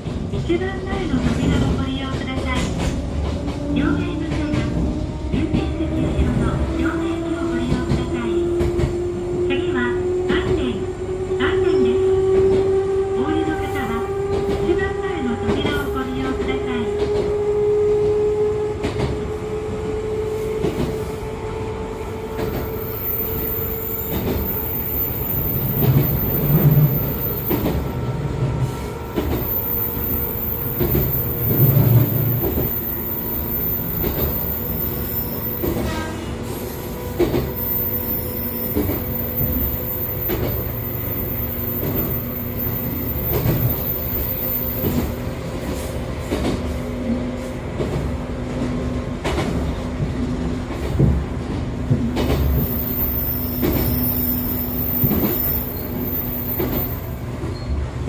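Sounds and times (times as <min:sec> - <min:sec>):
train motor and gear hum: 0:00.0 - 0:58.0.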